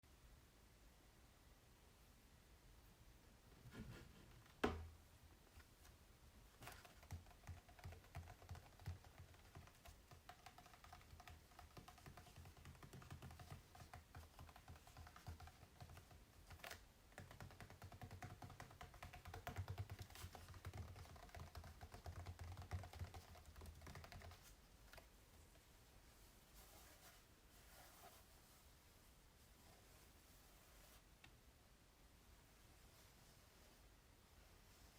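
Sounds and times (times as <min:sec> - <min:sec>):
fingers tapping on canvas: 0:06.6 - 0:25.0.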